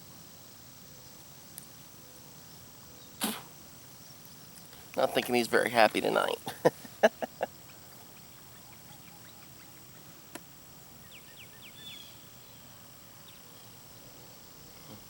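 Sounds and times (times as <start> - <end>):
faint outdoor pond ambience: 0.0 - 15.0
short quick bird chirps: 3.2 - 3.5.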